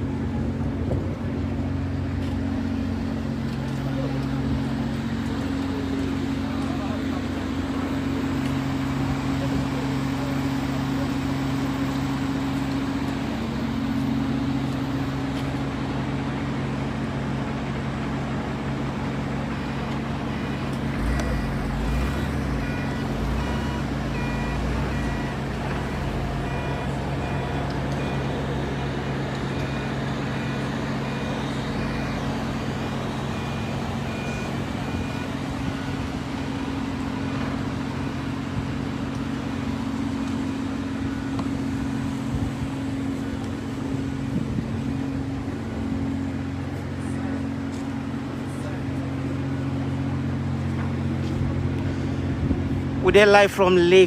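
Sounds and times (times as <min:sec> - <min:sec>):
low engine drone: 0:00.0 - 0:54.0
faint short beeps: 0:19.6 - 0:28.9, 0:29.5 - 0:35.5.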